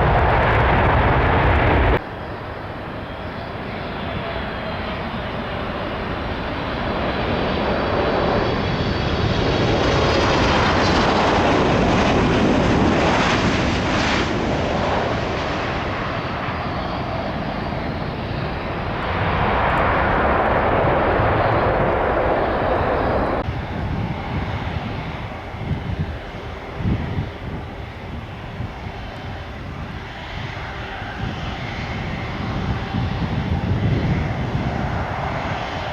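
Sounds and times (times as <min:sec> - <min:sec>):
jet engines roaring at takeoff: 0:00.0 - 0:35.9.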